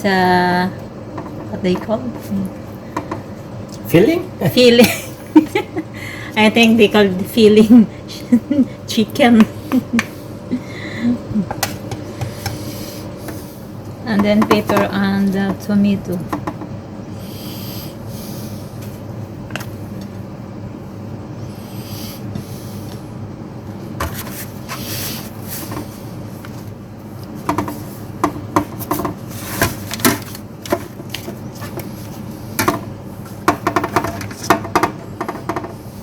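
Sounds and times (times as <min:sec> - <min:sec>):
steady background hum: 0:00.0 - 0:36.0.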